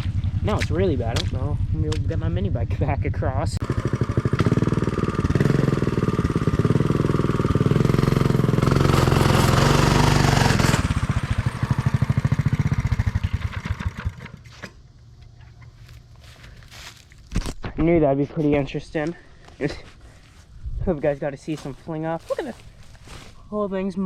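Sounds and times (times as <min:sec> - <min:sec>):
small engine revving hard: 0:03.6 - 0:14.2.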